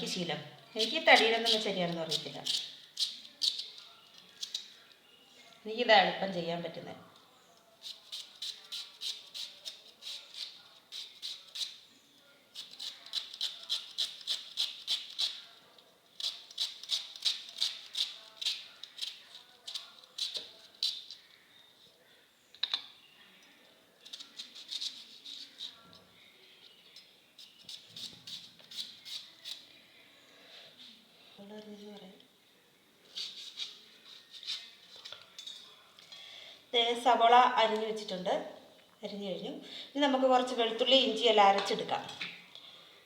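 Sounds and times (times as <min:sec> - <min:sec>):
knife slicing onion: 0:00.8 - 0:03.7, 0:07.8 - 0:11.8, 0:12.5 - 0:15.4, 0:16.2 - 0:21.1, 0:24.0 - 0:25.8, 0:27.4 - 0:29.6, 0:33.1 - 0:34.9.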